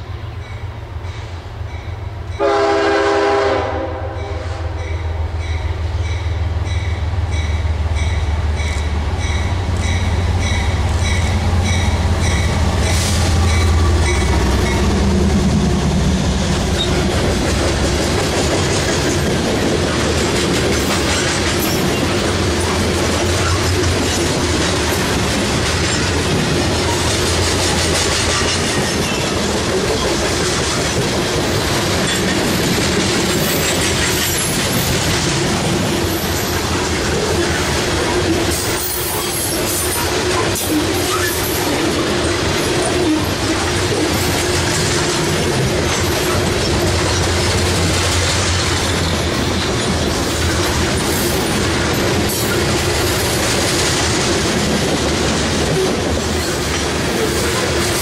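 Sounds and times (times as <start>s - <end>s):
train horn blast: 2.4s - 5.0s
locomotive engine drone: 5.1s - 28.4s
train wheels clattering over rails: 5.9s - 58.0s.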